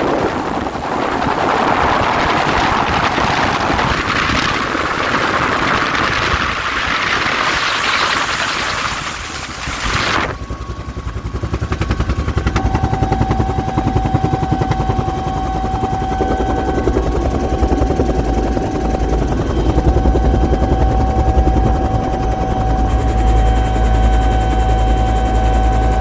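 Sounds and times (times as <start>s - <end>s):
helicopter rotor beating: 0.0s - 26.0s
turbine whine: 0.0s - 26.0s.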